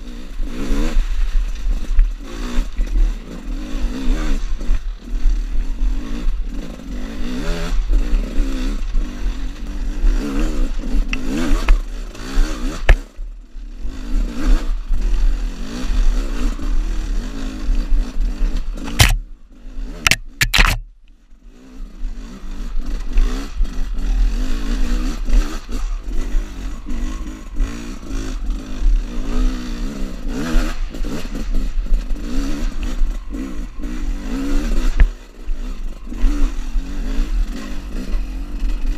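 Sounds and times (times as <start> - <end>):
two-stroke motorcycle engine revving: 0.0 - 38.9
sharp clacks: 18.8 - 19.2, 20.0 - 20.9.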